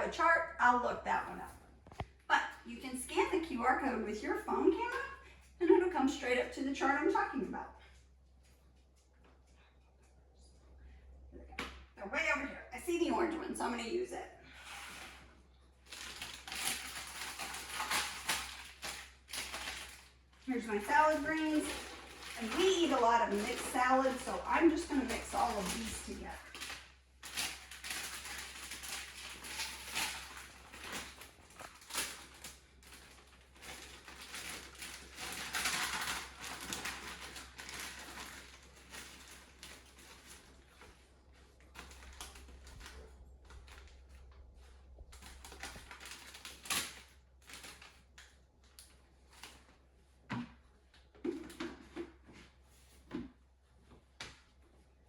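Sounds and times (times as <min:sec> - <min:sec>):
salad greens rustling: 0:14.5 - 0:50.3.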